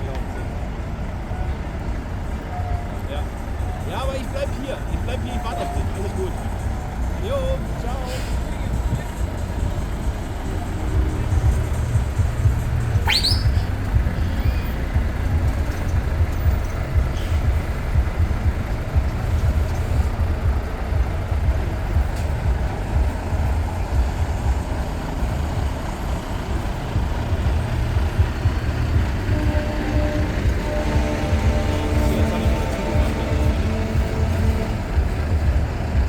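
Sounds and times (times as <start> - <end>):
heavy trucks engine rumble: 0.0 - 36.0
short rising whistle: 12.9 - 13.7.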